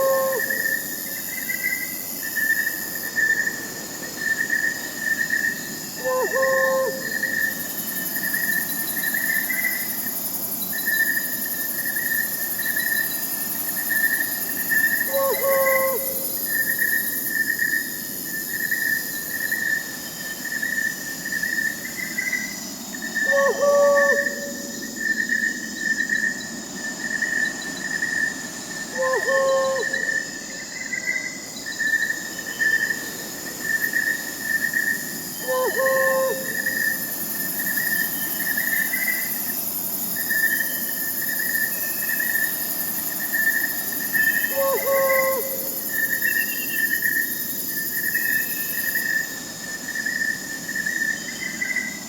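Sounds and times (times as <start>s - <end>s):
owl hooting: 0.0s - 0.9s, 6.0s - 7.6s, 15.1s - 16.4s, 23.2s - 24.9s, 28.9s - 30.2s, 35.4s - 37.0s, 44.2s - 46.2s
crickets chirping: 0.0s - 52.0s.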